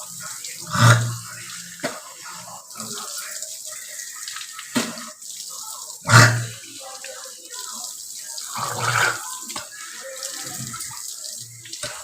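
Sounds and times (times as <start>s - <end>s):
tap water running into sink: 0.0s - 12.0s.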